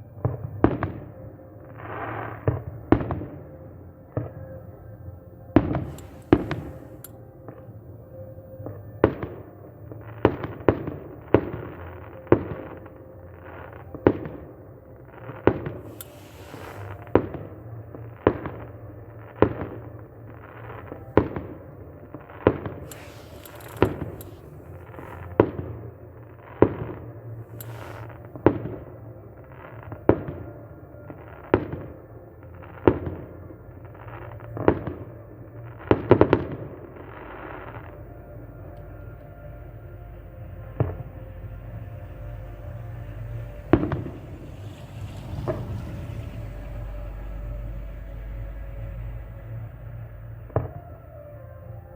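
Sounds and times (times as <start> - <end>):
fireworks bangs: 5.6 - 7.1, 15.5 - 17.5, 22.5 - 25.7, 27.5 - 28.8, 43.5 - 47.3.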